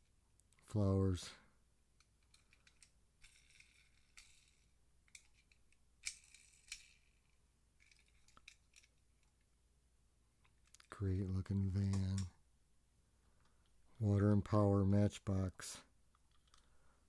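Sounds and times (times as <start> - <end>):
toy cars clicking and scraping: 2.0 - 9.5, 16.1 - 16.7.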